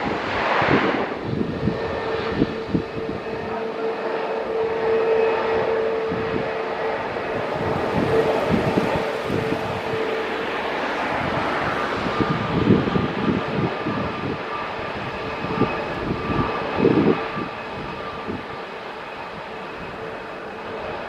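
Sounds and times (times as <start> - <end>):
wind thumping on microphone: 0.0 - 3.6, 7.2 - 18.6
jet engines roaring and whining: 0.0 - 21.0.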